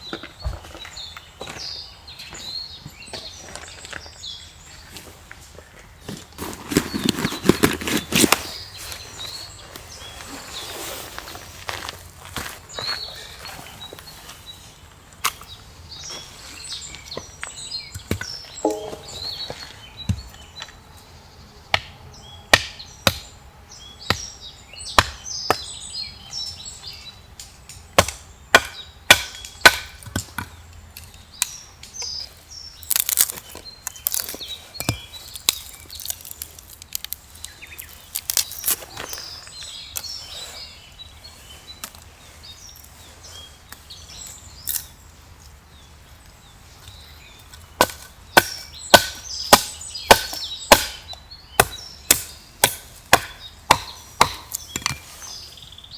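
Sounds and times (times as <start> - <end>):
birds chirping: 0.0 - 55.9
axe splitting firewood: 6.3 - 8.6, 18.0 - 19.6, 28.0 - 30.5, 32.8 - 39.2, 47.6 - 55.2.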